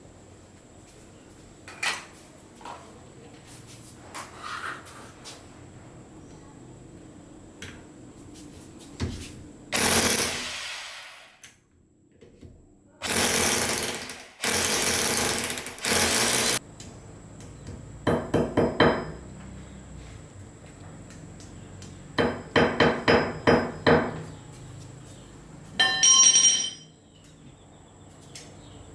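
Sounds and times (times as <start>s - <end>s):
power drill bursts: 9.8s - 11.4s, 13.0s - 16.6s.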